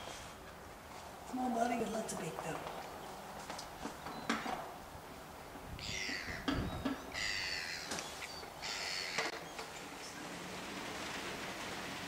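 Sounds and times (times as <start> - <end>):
bird harsh calls: 5.8 - 9.6.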